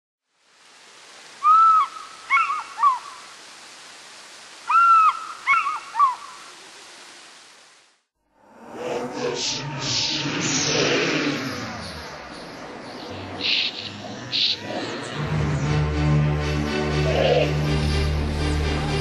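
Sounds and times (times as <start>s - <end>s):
steady hiss: 0.2s - 8.1s, 9.1s - 15.1s
bird call: 1.4s - 3.2s, 4.7s - 6.4s.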